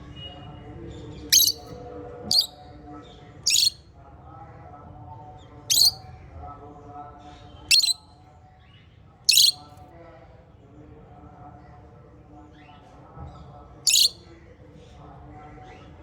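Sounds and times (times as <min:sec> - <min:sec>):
shrill parrot calls: 0:01.4 - 0:01.6, 0:02.3 - 0:02.5, 0:03.5 - 0:03.8, 0:05.7 - 0:06.0, 0:07.7 - 0:08.0, 0:09.3 - 0:09.6, 0:13.9 - 0:14.2
warbling bird chatter: 0:01.4 - 0:01.6, 0:02.3 - 0:02.5, 0:03.5 - 0:03.8, 0:05.7 - 0:06.0, 0:07.7 - 0:08.0, 0:09.3 - 0:09.6, 0:13.9 - 0:14.2.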